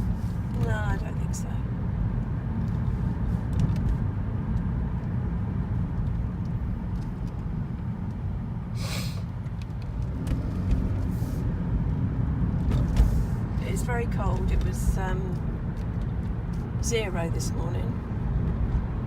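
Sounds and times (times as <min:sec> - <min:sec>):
road and engine rumble in car: 0:00.0 - 0:19.0
brief hiss: 0:08.8 - 0:09.3.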